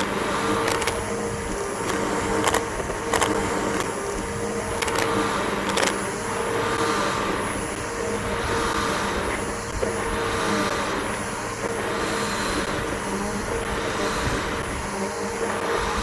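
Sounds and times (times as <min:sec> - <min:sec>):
sharp clicks: 0:00.0 - 0:06.1
vacuum cleaner running: 0:00.0 - 0:16.0.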